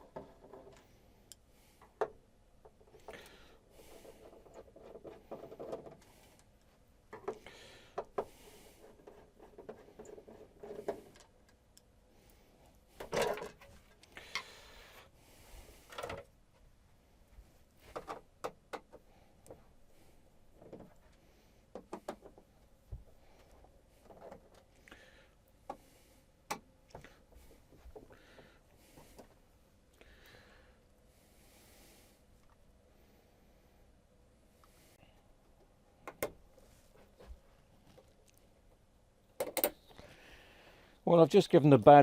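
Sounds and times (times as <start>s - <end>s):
objects being handled: 1.8s - 11.7s, 12.3s - 24.8s.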